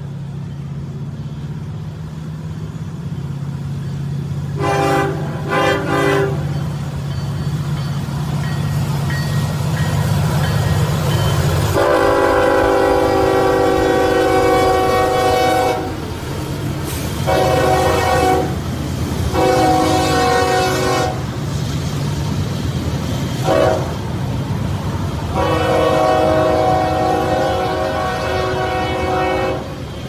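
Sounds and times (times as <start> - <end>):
passing train rumble: 0.0 - 30.0
locomotive air horn blasts: 4.6 - 6.5, 11.7 - 16.0, 17.1 - 18.6, 19.3 - 21.3, 23.4 - 24.0, 25.3 - 29.9.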